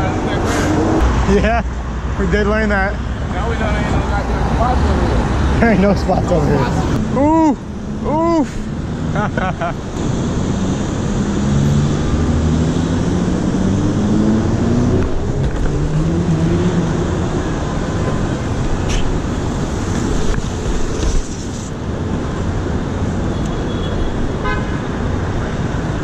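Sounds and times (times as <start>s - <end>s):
street traffic noise: 0.0s - 26.0s
vehicle engine accelerating: 9.9s - 18.6s.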